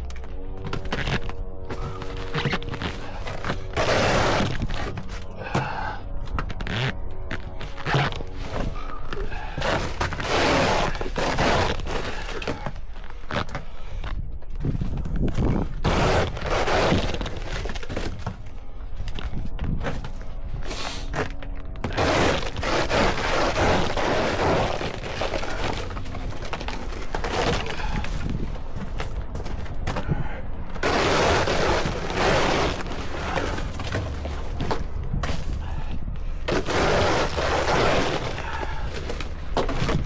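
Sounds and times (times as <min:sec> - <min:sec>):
steady low rumble: 0:00.0 - 0:40.0
shovel scraping through snow: 0:00.8 - 0:05.8, 0:07.6 - 0:12.7, 0:15.8 - 0:18.3, 0:19.8 - 0:28.5, 0:30.8 - 0:35.8, 0:36.4 - 0:40.0.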